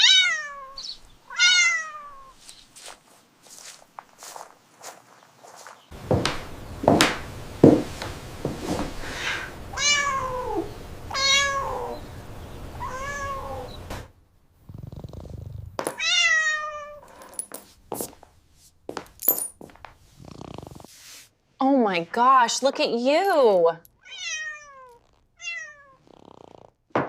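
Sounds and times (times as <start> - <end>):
cat meowing: 0.0 - 2.4, 9.3 - 12.1, 12.8 - 13.9, 16.0 - 17.1, 24.0 - 26.4
sharp knocks: 6.1 - 7.9.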